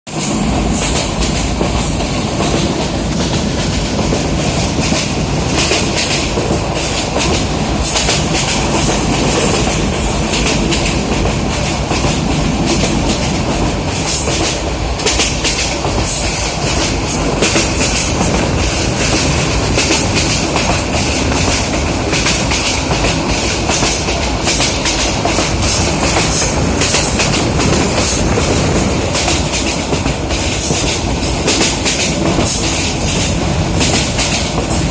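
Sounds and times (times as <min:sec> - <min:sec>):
train rumbling on rails: 0:00.1 - 0:34.9.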